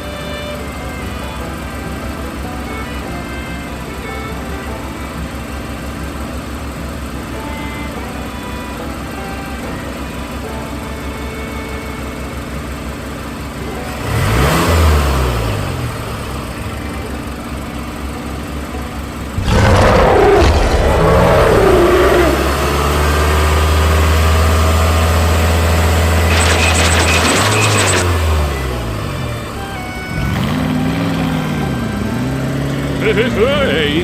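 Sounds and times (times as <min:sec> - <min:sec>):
tractor engine running: 0:00.0 - 0:34.0
sudden loud noise: 0:19.4 - 0:23.6
rapid clicking: 0:26.3 - 0:28.2.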